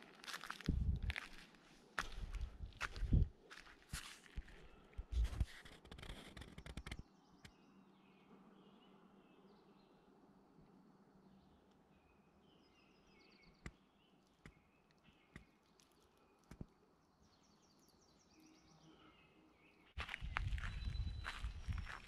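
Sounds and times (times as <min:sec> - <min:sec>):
faint songbird chirps: 0:05.9 - 0:22.0.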